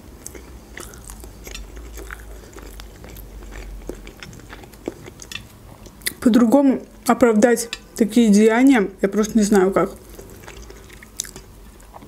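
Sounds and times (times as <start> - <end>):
person chewing food: 0.0 - 6.2, 10.0 - 12.0.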